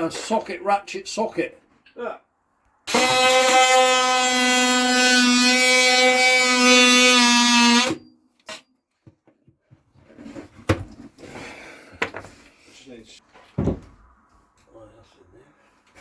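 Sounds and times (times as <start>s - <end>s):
electric power tool buzzing: 2.9s - 8.0s.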